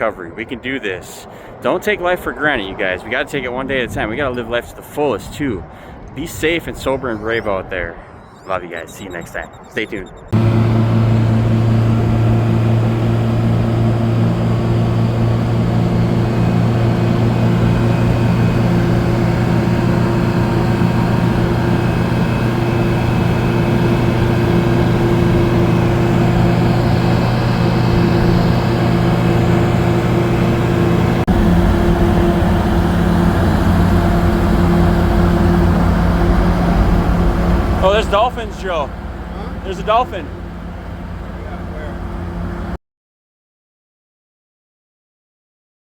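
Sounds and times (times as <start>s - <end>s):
wind and road noise: 0.0s - 8.3s, 10.4s - 42.7s
motorcycle engine cruising: 10.3s - 42.8s.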